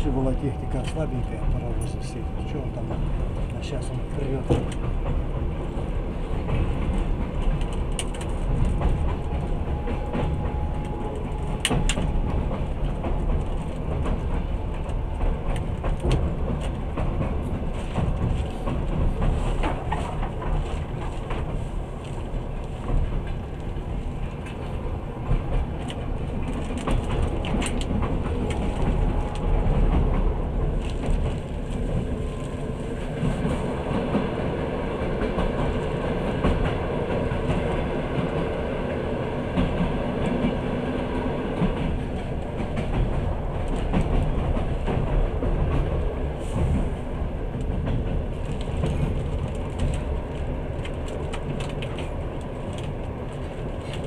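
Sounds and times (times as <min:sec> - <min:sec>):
train wheels rumbling: 0:00.0 - 0:54.0
wheels clicking over rail joints: 0:02.8 - 0:32.6.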